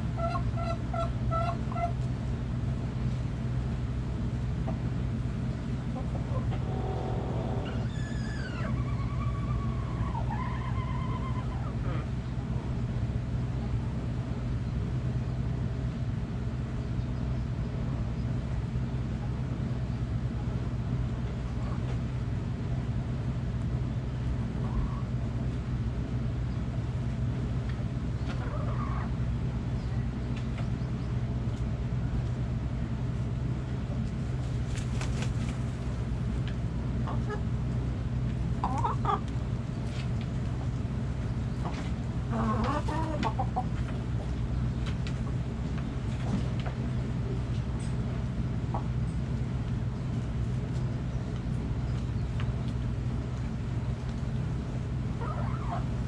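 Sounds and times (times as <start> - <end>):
steady low rumble: 0.0 - 56.0
hen calling: 55.2 - 56.0.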